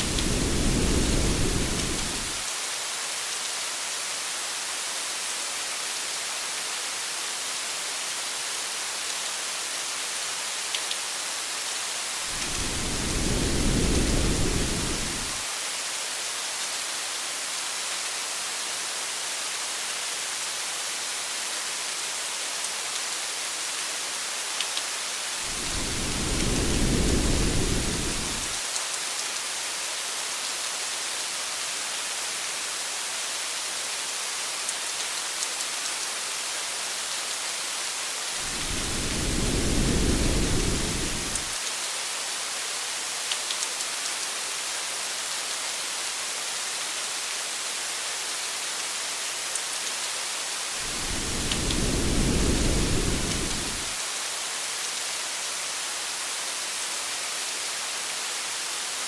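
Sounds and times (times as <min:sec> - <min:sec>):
low thunder rumble: 0:00.0 - 0:02.4, 0:12.4 - 0:15.4, 0:25.5 - 0:28.6, 0:38.4 - 0:41.5, 0:50.8 - 0:53.9
rain falling on a car: 0:00.0 - 0:02.4, 0:12.3 - 0:15.4, 0:24.7 - 0:28.6, 0:38.4 - 0:41.6, 0:50.8 - 0:54.0.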